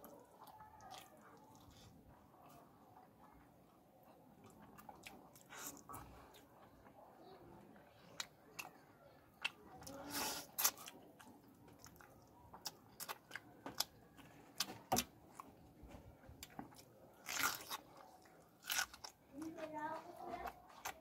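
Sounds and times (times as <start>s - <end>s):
person chewing with clicks: 4.4s - 6.9s, 7.9s - 15.5s, 16.4s - 21.0s.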